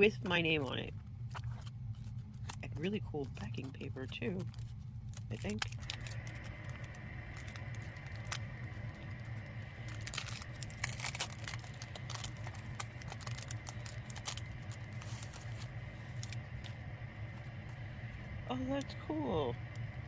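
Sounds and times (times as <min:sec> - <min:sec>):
steady low hum: 0:00.0 - 0:20.0
packaging crinkling and tearing: 0:01.2 - 0:16.8.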